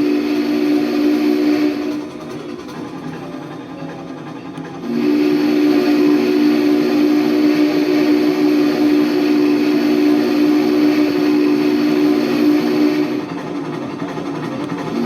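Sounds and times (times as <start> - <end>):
steam locomotive whistle blast: 0.0 - 2.2, 4.8 - 13.4
train running noise: 0.0 - 15.0.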